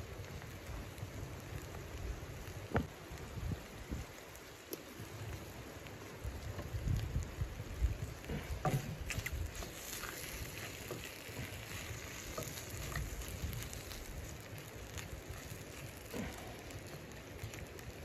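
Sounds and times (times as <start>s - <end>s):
chicken sizzling in a frying pan: 0.0s - 18.0s
crackling oil spatters: 0.0s - 18.0s
wooden spatula scraping a pan: 8.2s - 13.1s.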